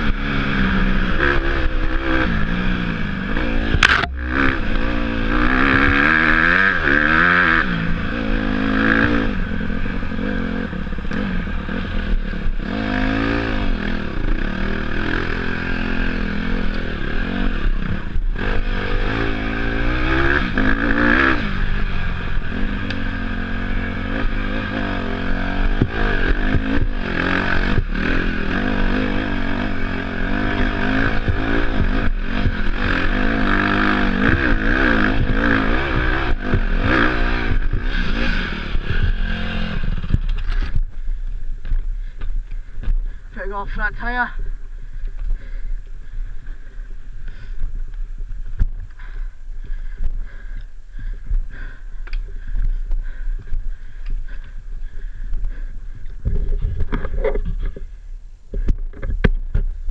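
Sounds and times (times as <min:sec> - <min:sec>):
dirt bike engine revving: 0:00.0 - 0:42.2
bike clattering and scraping: 0:31.1 - 0:43.3, 0:44.5 - 0:59.9.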